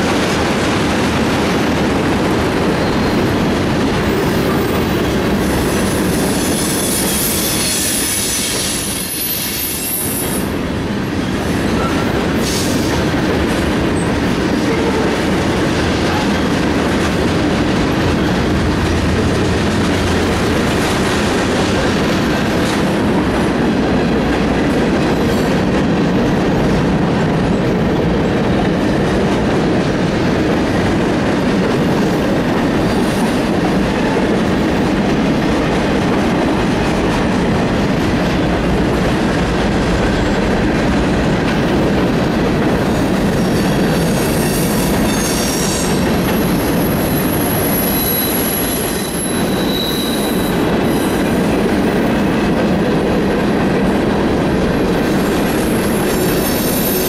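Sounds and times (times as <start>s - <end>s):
train wheels rumbling on rail: 0.0s - 57.0s
high-pitched wheel squeal: 6.0s - 10.2s, 46.8s - 51.2s, 56.1s - 57.0s.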